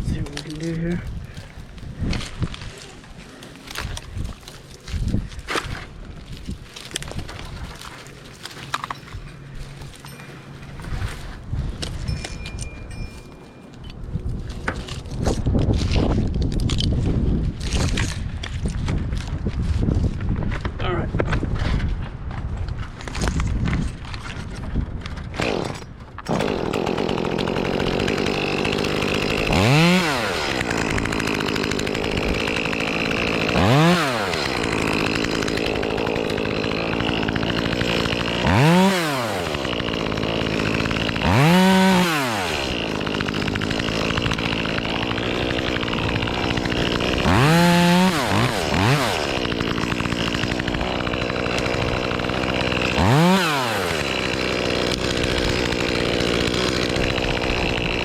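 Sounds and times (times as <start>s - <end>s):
chainsaw idling and revving: 0.1s - 1.8s, 25.4s - 58.0s.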